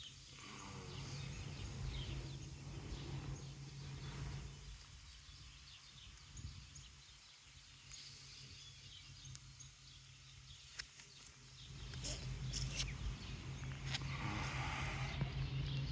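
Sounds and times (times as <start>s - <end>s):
faint bird chirps: 0.0s - 15.9s
steady low hum: 0.0s - 15.9s
low rumble: 0.1s - 7.7s, 11.5s - 15.9s
crackling rustles near microphone: 10.5s - 15.4s.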